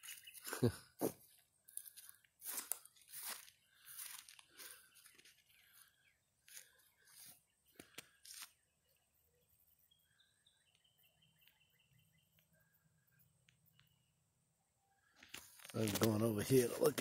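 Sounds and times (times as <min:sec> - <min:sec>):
faint crunches: 0:00.1 - 0:08.6, 0:15.1 - 0:16.8.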